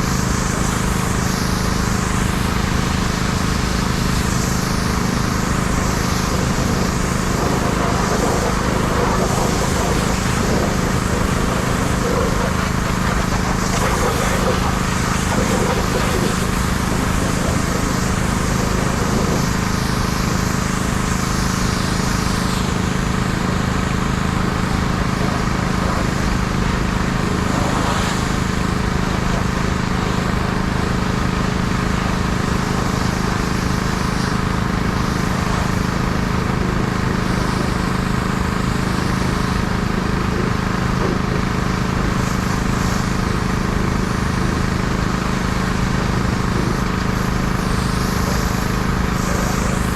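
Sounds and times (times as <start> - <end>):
pressure washer motor hum: 0.0 - 49.9
water spray hissing: 3.8 - 31.1, 45.9 - 49.9.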